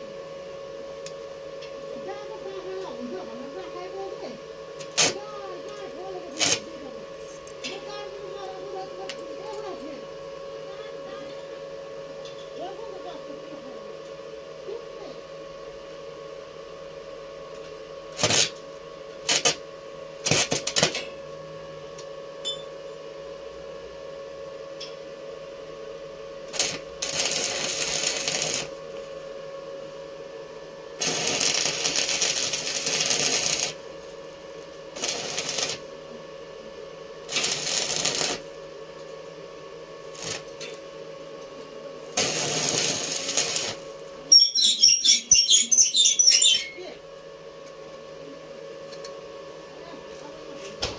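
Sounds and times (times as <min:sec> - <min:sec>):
arc welding crackling: 0:04.8 - 0:09.8, 0:18.1 - 0:19.6, 0:20.2 - 0:21.0, 0:26.4 - 0:29.3, 0:31.0 - 0:36.0, 0:37.2 - 0:38.7, 0:40.0 - 0:40.8, 0:42.0 - 0:46.7.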